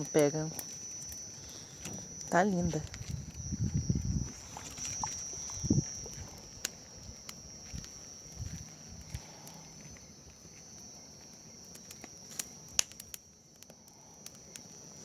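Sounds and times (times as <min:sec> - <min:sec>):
bonfire crackling and popping: 0:00.0 - 0:15.0
high-pitched whine: 0:00.0 - 0:15.0.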